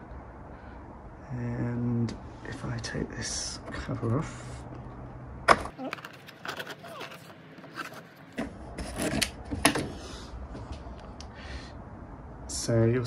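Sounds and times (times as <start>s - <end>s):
card rubbing and scraping: 5.9s - 9.4s.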